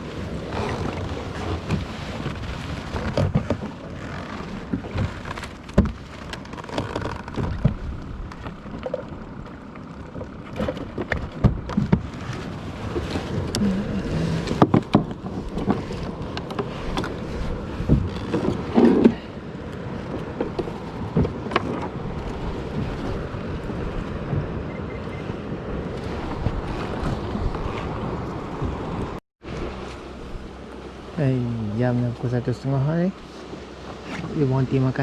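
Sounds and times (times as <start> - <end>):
water lapping against kayak hull: 0.0 - 35.0
wind rumbling on microphone: 0.0 - 35.0
gear knocking against hull: 0.6 - 9.2, 10.0 - 17.2.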